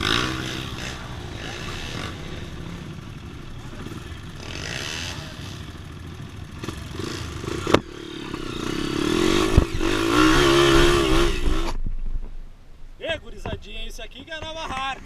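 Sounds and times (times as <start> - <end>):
dirt bike engine revving: 0.0 - 11.8.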